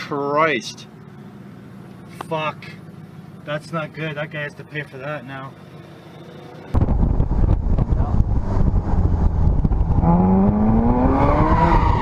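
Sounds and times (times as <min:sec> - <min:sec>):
road and wind noise: 0:00.0 - 0:12.0
car engine accelerating: 0:05.4 - 0:12.0
high tire squeal: 0:11.4 - 0:12.0.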